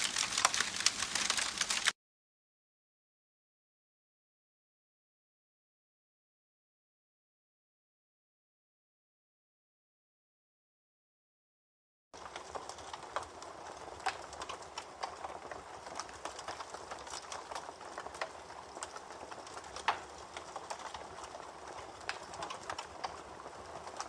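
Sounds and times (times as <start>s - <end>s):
campfire crackling: 0.0s - 2.0s, 12.2s - 24.0s.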